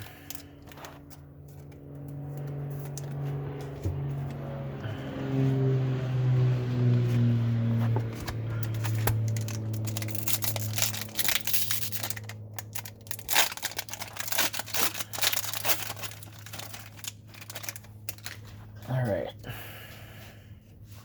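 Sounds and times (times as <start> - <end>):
low steady hum: 0.0 - 21.0
plastic crinkling and rustling: 8.6 - 18.8.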